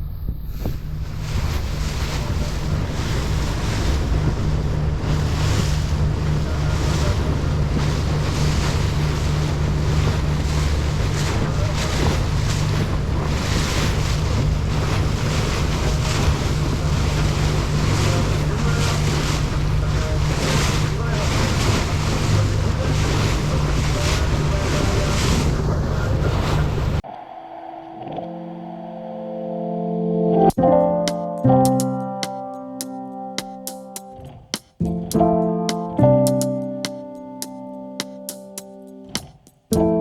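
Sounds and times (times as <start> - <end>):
wind buffeting microphone: 0.0 - 29.5
water rushing past boat: 0.6 - 40.0.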